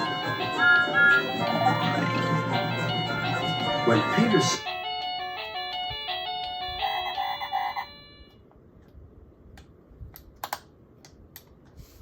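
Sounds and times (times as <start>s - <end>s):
background music melody: 0.0s - 7.2s.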